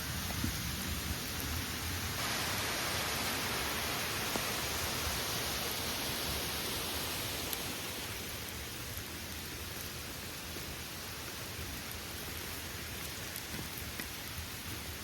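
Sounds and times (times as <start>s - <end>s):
waterfall rushing: 2.1s - 8.7s.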